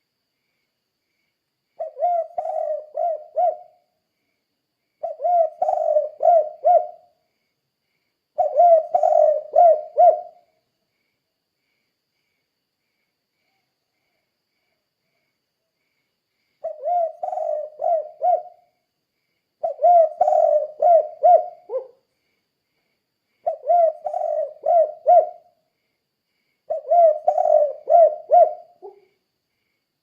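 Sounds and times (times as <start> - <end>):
dove cooing: 1.8 - 3.8, 5.0 - 7.1, 8.4 - 10.5, 16.6 - 18.7, 19.6 - 22.0, 23.4 - 25.5, 26.7 - 29.1.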